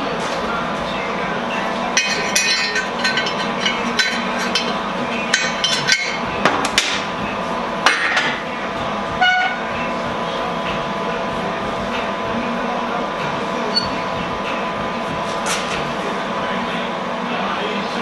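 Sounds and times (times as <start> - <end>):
steady machine hum: 0.0 - 18.0
steel tubing clanking: 2.0 - 6.3.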